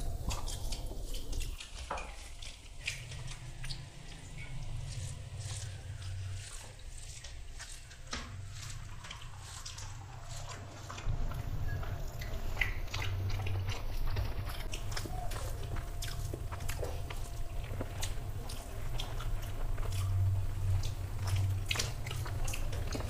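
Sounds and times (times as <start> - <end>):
people chewing: 0.0 - 23.0.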